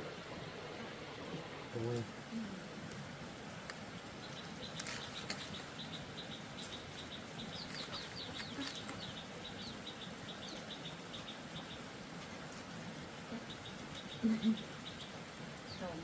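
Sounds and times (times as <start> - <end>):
background hiss: 0.0 - 16.0
small bird chirping: 3.6 - 16.0.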